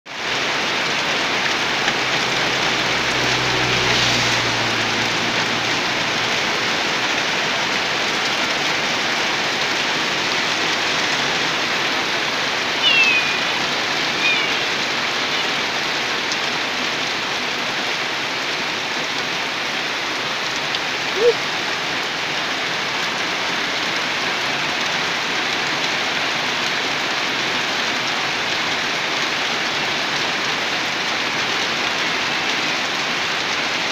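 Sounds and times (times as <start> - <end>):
steady rain falling: 0.1 - 33.9
high chirps: 12.8 - 15.6.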